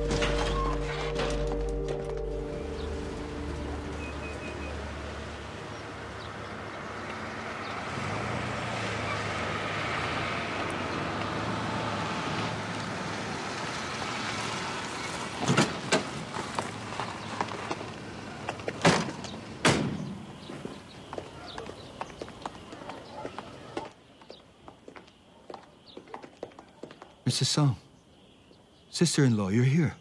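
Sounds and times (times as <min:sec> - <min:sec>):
vehicle engine humming: 0:00.0 - 0:19.6.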